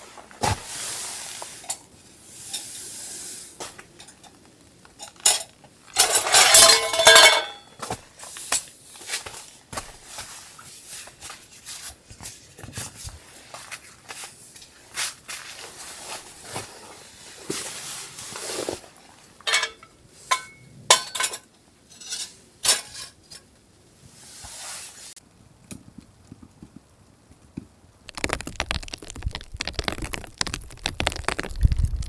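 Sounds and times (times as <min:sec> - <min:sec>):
soft rustling: 0:07.8 - 0:19.5.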